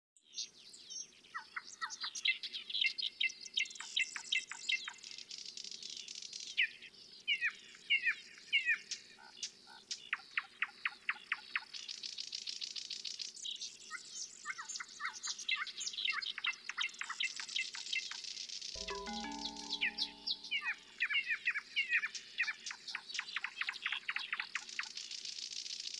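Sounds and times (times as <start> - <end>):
songbirds chirping and singing: 18.8 - 20.8.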